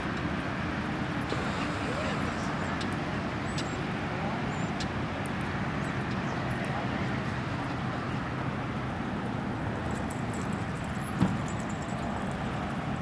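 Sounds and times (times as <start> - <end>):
distant road traffic rumble: 0.0 - 13.0
faint metallic jingling: 9.8 - 13.0.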